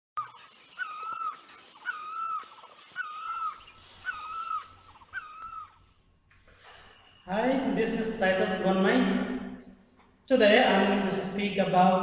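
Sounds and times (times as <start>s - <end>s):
bird calling: 0.2s - 6.0s.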